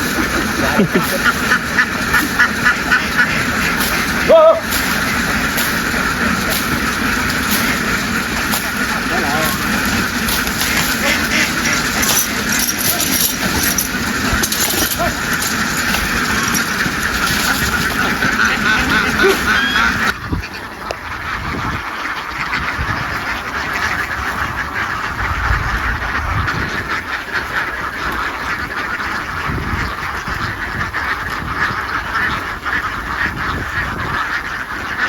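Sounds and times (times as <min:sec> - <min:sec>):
loud noise: 0:00.0 - 0:20.2
flock of ducks quacking: 0:00.0 - 0:35.0.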